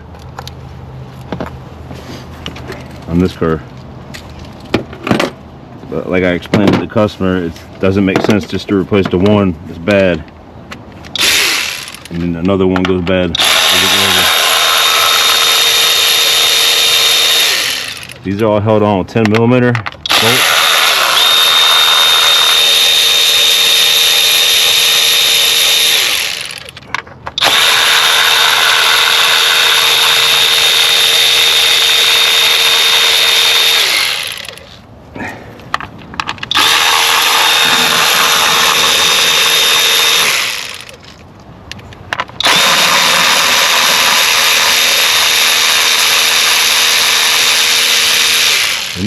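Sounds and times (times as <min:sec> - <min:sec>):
cordless power tool whine: 0:11.2 - 0:12.1, 0:13.4 - 0:18.2, 0:20.1 - 0:26.7, 0:27.4 - 0:34.8, 0:36.5 - 0:41.0, 0:42.4 - 0:49.0.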